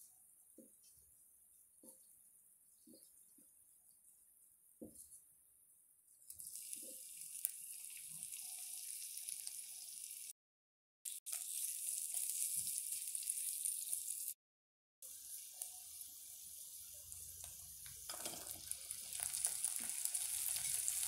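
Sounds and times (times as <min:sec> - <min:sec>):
mushrooms sizzling in hot oil: 0:06.3 - 0:10.3, 0:11.1 - 0:14.4, 0:15.0 - 0:21.0.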